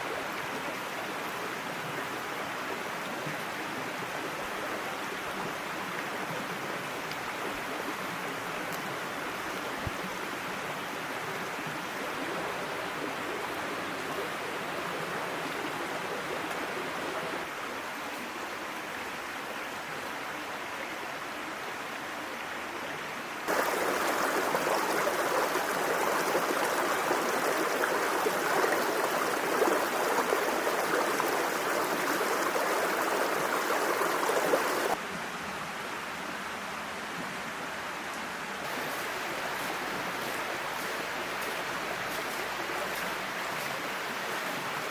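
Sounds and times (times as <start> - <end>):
stream babbling over rocks: 23.4 - 35.0.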